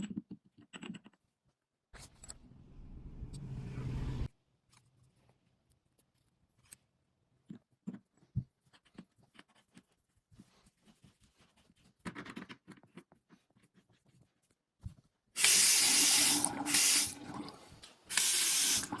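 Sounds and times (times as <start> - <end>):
water running into sink: 15.4 - 19.0.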